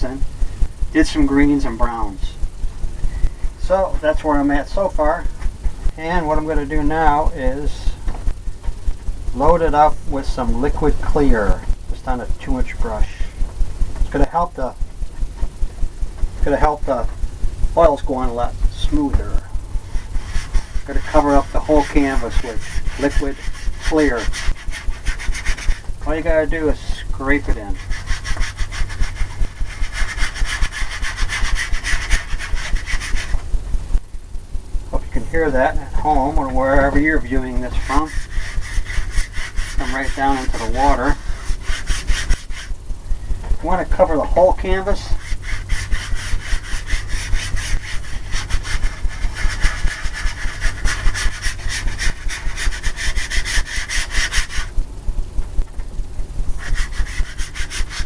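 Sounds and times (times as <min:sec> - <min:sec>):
paintbrush scrubbing on canvas: 0:17.9 - 0:33.4, 0:35.5 - 0:42.7, 0:43.6 - 0:54.7, 0:56.6 - 0:58.0.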